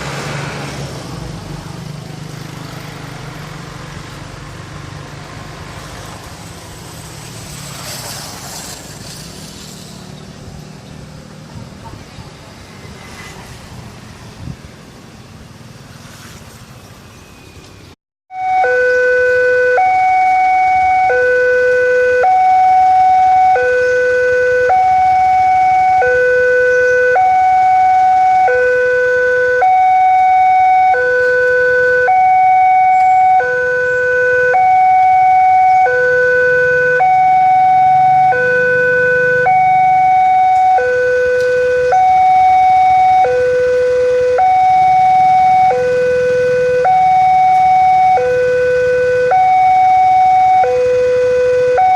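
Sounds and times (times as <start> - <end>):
faint road traffic: 0.0 - 51.9
level crossing two-tone alarm: 18.3 - 51.9.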